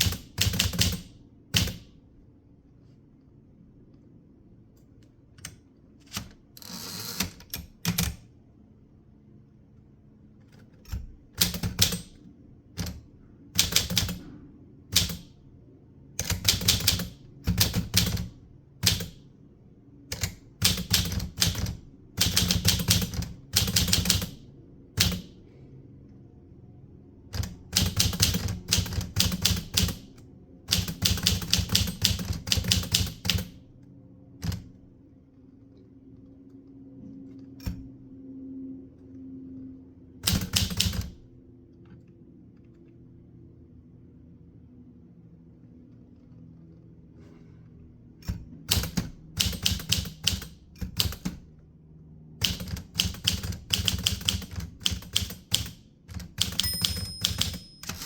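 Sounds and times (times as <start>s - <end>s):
typewriter key strikes: 0.0s - 1.9s, 10.9s - 12.2s, 13.6s - 14.3s, 14.9s - 15.4s, 16.2s - 19.2s, 20.1s - 24.4s, 25.0s - 25.4s, 27.4s - 30.1s, 30.7s - 33.5s, 40.2s - 41.2s, 48.3s - 51.4s, 52.4s - 58.0s.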